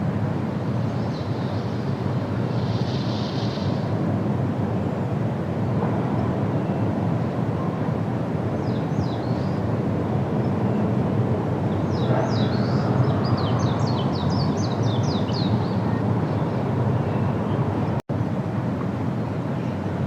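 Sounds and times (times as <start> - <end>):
small bird singing: 2.6 - 3.8, 8.6 - 9.6, 11.7 - 18.0.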